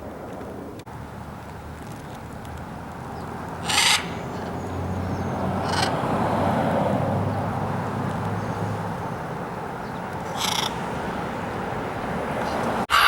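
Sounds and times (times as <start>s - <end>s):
bird harsh squawks: 3.6s - 4.2s, 5.6s - 6.0s, 10.3s - 10.8s.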